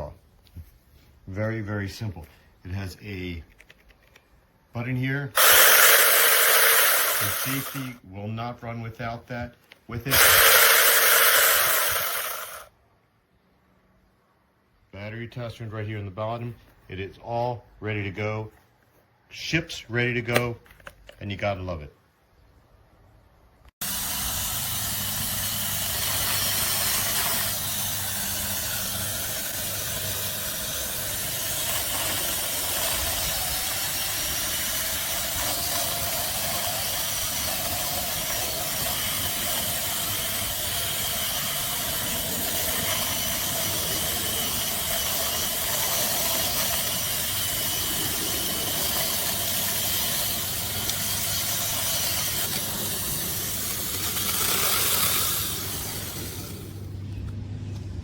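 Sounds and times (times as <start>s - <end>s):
electric chainsaw running: 5.4s - 8.0s, 10.1s - 12.7s, 23.8s - 57.0s.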